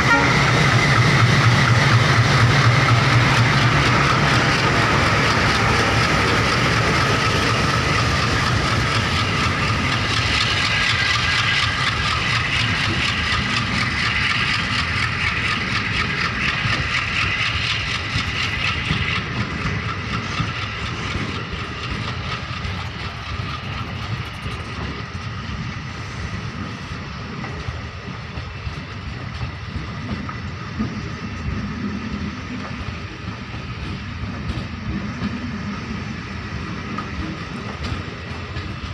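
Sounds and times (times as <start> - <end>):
train coaches rumbling on track: 0.0 - 38.9.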